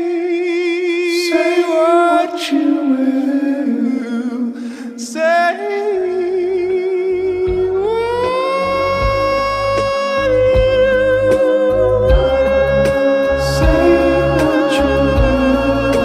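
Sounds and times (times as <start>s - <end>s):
person singing long notes: 0.0s - 16.0s
low bass line: 6.3s - 16.0s.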